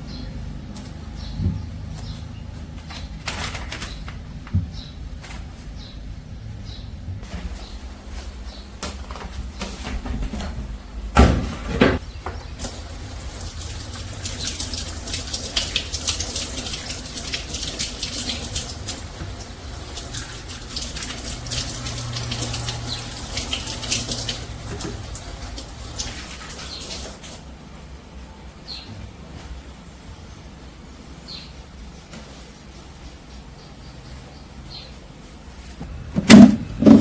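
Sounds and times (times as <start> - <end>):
loud thuds: 35.9 - 37.0.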